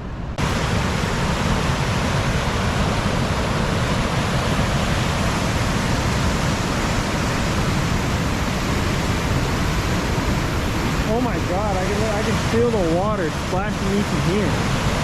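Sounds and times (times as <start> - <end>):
river in flood roaring: 0.4 - 15.0.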